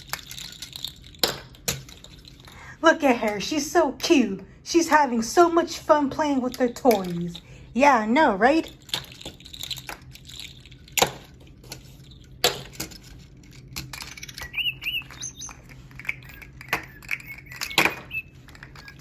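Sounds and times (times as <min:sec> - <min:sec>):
toys clicking and knocking: 0:00.0 - 0:07.5, 0:08.1 - 0:19.0
bird chirping: 0:14.2 - 0:19.0.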